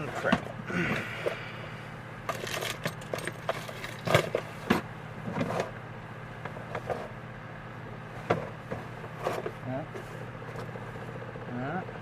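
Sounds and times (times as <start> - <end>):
steady low hum: 0.0 - 12.0
metal parts clicking and knocking: 2.3 - 4.4.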